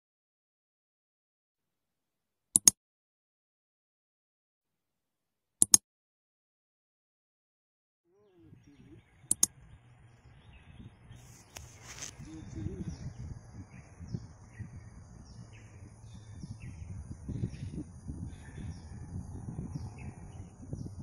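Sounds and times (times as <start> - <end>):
sharp clicks: 2.6 - 2.8, 9.3 - 9.6
bird chirping: 8.1 - 21.0
low uneven rustle: 9.8 - 12.6.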